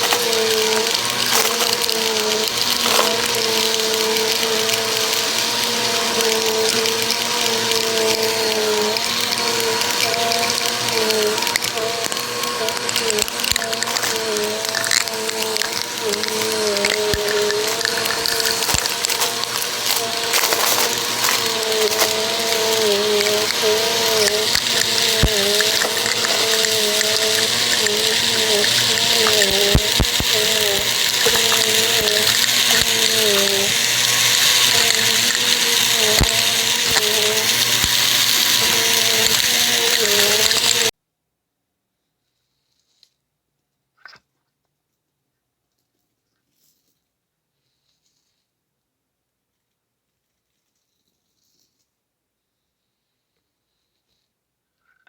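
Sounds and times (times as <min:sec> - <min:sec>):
debris crackling in vacuum: 0:00.0 - 0:40.9
vacuum cleaner motor whine: 0:00.0 - 0:40.9.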